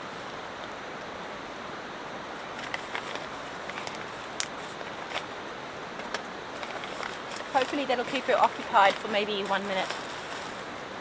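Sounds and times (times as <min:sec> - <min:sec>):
outdoor background hiss: 0:00.0 - 0:11.0
faint clicks and rustles: 0:02.4 - 0:11.0.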